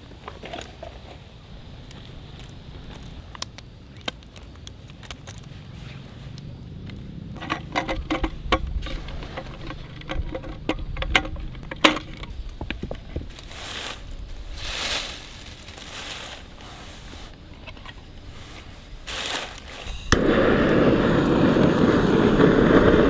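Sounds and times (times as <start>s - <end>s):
small knocks and clinks: 7.3s - 13.3s
soft rustling: 12.6s - 20.1s.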